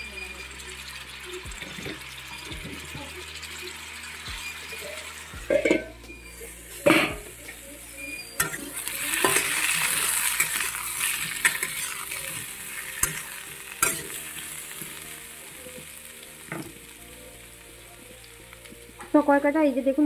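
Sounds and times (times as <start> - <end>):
vegetables sizzling in oil: 0.0 - 20.0
metal spatula scraping a pan: 0.8 - 15.9.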